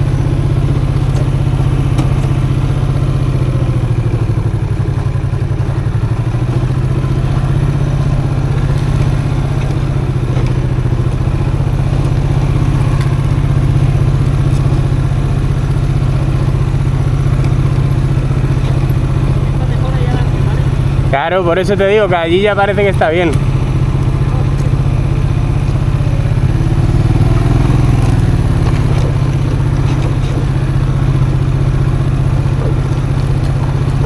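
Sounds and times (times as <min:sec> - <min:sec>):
motorcycle engine running: 0:00.0 - 0:34.0
bike clattering on dirt track: 0:27.2 - 0:34.0.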